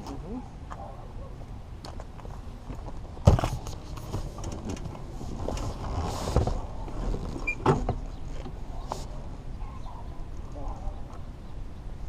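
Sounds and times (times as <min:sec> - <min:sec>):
clicks creaks and rustling: 0:02.7 - 0:09.1.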